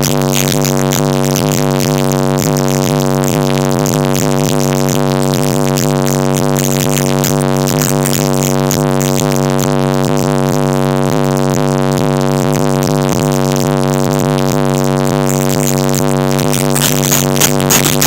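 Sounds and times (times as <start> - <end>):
electronic music with heavy bass: 0.0 - 18.0.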